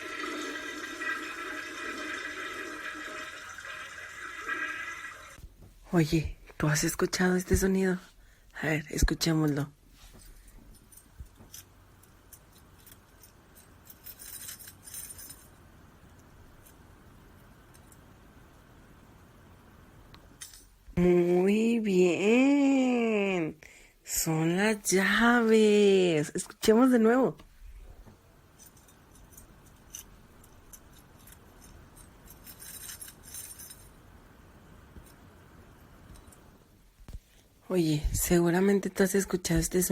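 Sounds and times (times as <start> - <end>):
keys jangling: 10.2 - 15.6, 28.6 - 34.0.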